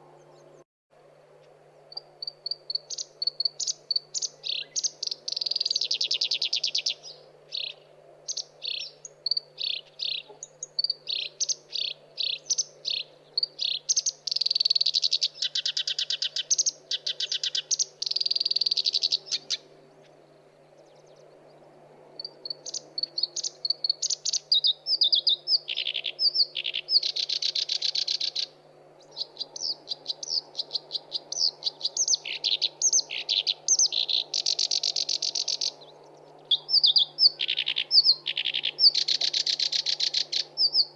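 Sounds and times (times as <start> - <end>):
warbler singing: 1.8 - 40.9.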